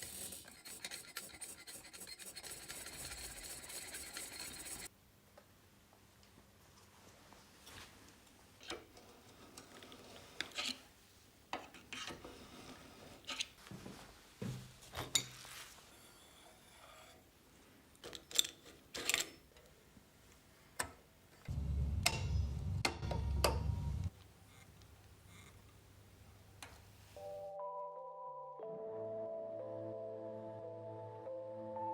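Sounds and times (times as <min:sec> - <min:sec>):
low rumble: 0:21.5 - 0:24.1.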